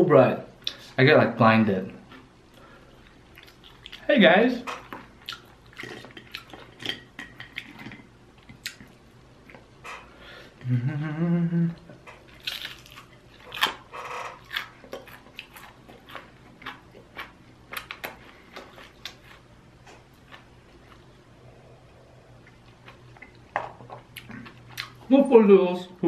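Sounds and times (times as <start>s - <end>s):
close-miked chewing: 2.0s - 4.1s, 4.8s - 9.6s, 12.2s - 21.2s, 22.3s - 25.1s
person humming: 10.6s - 12.0s.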